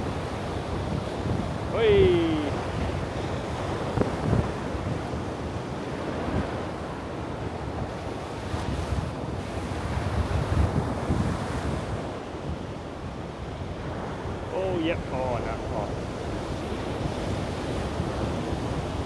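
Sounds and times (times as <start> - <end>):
wind buffeting microphone: 0.0 - 12.7
ocean surf washing on beach: 0.0 - 19.0.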